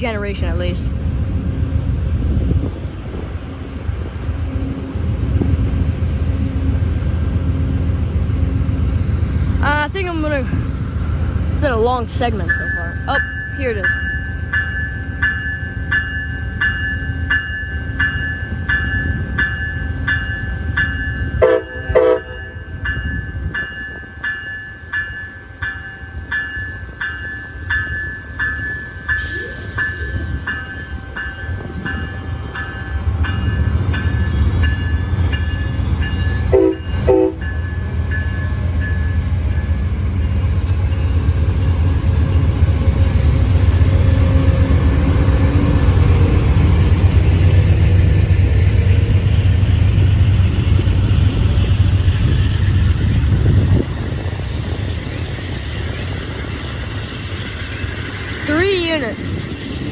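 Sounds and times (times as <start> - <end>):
locomotive rumble: 0.0 - 59.9
crossing warning bell ringing: 7.4 - 59.9
train horn blasts: 21.4 - 22.6, 36.5 - 37.5.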